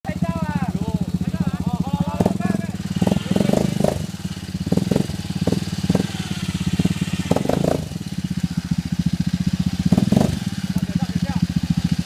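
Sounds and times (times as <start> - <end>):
engine chugging: 0.1 - 12.0.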